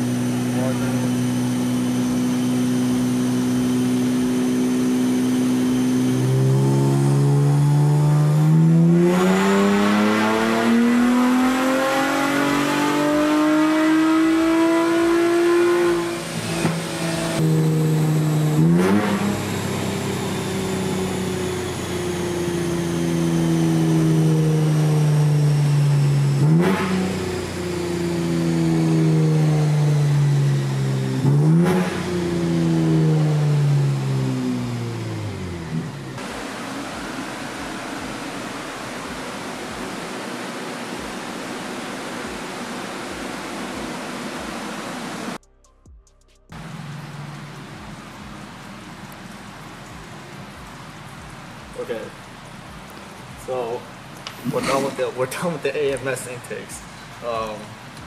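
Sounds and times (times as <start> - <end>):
car engine revving on dyno: 0.0 - 45.4.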